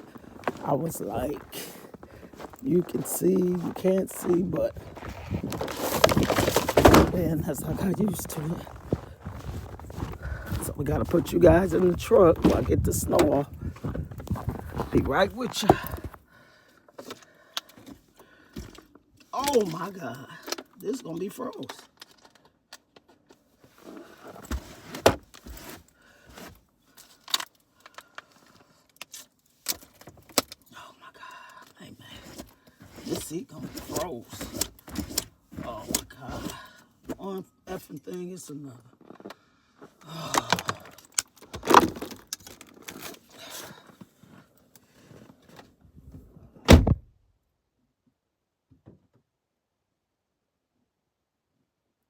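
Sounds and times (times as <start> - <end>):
rustling: 1.9 - 16.2
heavy thump: 46.7 - 47.1
vehicle door shutting: 46.7 - 47.1.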